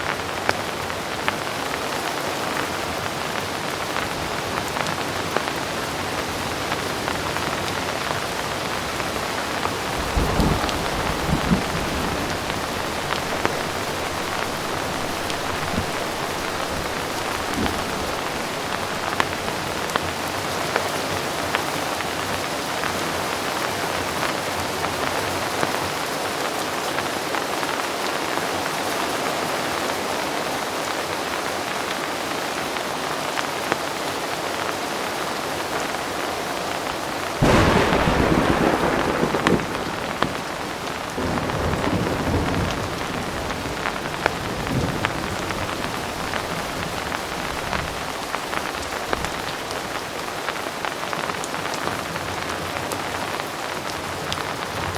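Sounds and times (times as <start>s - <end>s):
heavy rain: 0.0s - 54.9s
raindrops ticking on a surface: 0.0s - 54.9s
thunder rumble: 9.0s - 20.3s, 37.4s - 50.1s.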